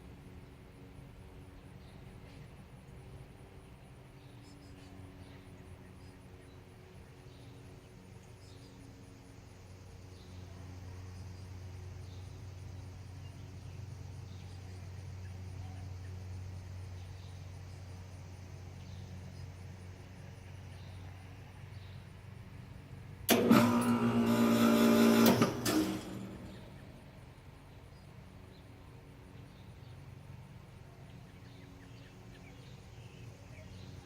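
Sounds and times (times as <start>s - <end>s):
machine humming: 23.2s - 27.8s
loud pitched mechanical sound: 23.3s - 27.2s.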